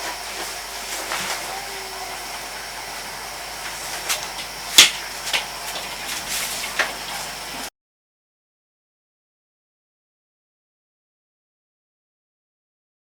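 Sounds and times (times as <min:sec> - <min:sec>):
pot of soup hissing: 0:00.0 - 0:07.7.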